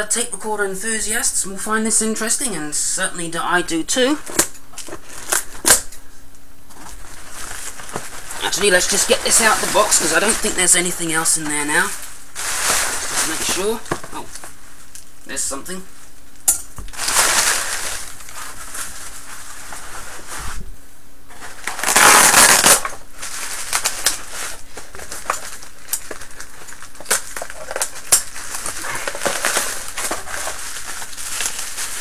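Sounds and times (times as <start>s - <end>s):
packaging crinkling and rustling: 4.0s - 5.9s, 6.7s - 15.2s, 16.4s - 20.6s, 21.3s - 32.0s.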